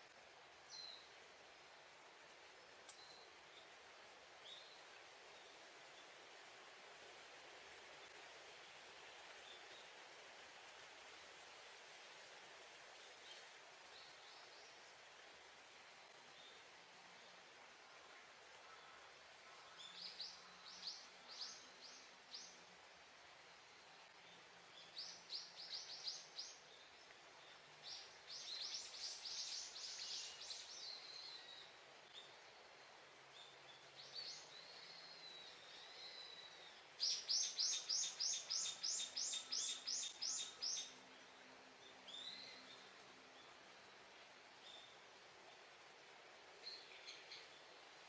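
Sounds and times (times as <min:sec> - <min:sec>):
small birds chirping: 0:24.2 - 0:32.4, 0:33.3 - 0:43.6.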